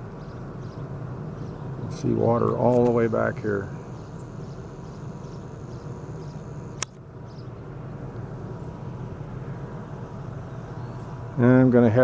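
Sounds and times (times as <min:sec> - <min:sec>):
low outdoor rumble: 0:00.0 - 0:12.0
sharp click: 0:06.8 - 0:07.0.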